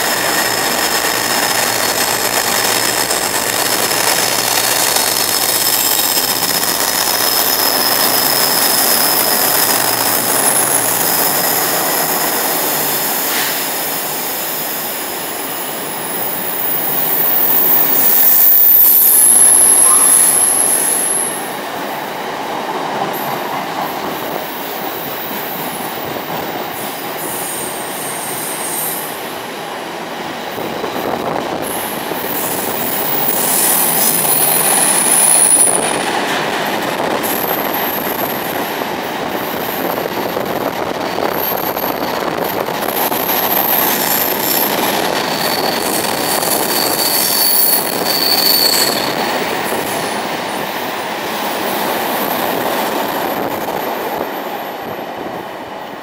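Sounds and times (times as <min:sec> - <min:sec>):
train wheels rumbling on rail: 0:00.0 - 0:56.0
high-pitched wheel squeals: 0:03.6 - 0:12.5, 0:16.4 - 0:21.5, 0:32.3 - 0:36.0, 0:43.6 - 0:49.8.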